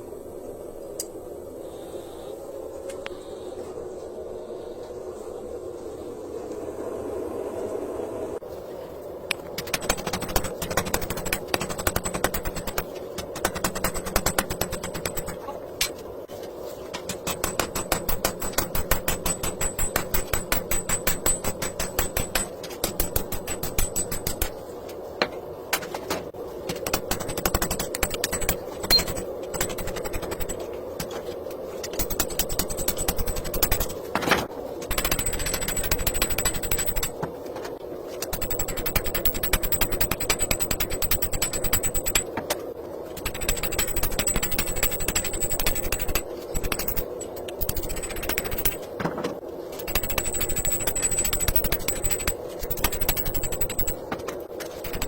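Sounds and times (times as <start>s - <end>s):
power hammer striking steel: 17.2s - 24.6s.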